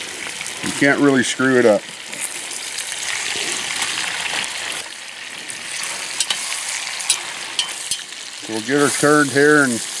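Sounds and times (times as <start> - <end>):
chicken sizzling in oil: 0.0 - 10.0
metal tongs clicking: 7.1 - 8.1.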